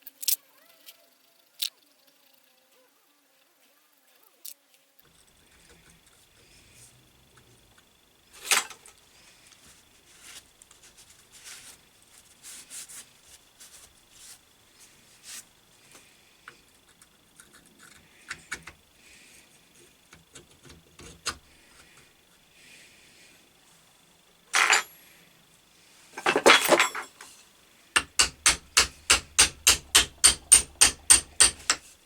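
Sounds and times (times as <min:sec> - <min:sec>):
light metal scrapes and clinks: 0:08.3 - 0:09.0, 0:24.6 - 0:25.0, 0:26.2 - 0:32.0.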